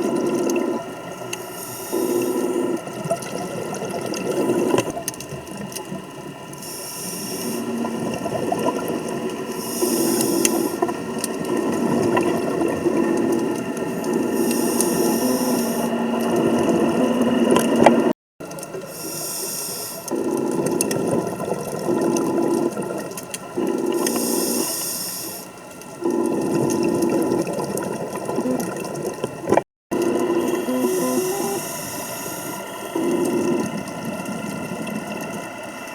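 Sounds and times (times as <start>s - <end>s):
exhaled bubbles rumbling: 0.0s - 19.0s, 20.1s - 24.7s, 25.6s - 35.9s
diver breathing through regulator: 1.4s - 2.9s, 6.6s - 8.0s, 9.4s - 10.9s, 13.1s - 18.0s, 18.8s - 20.6s, 23.5s - 27.3s, 30.0s - 34.0s
steady mechanical drone: 6.0s - 18.1s.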